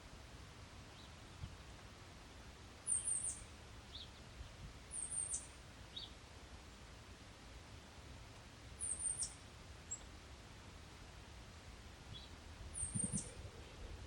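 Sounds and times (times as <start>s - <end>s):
high thin bird calls: 12.8s - 13.4s.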